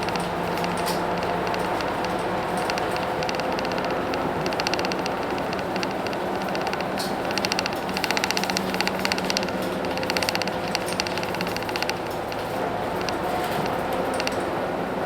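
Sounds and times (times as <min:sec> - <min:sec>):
bus diesel engine running: 0:00.0 - 0:08.0
rapid fine ticking: 0:00.0 - 0:14.5.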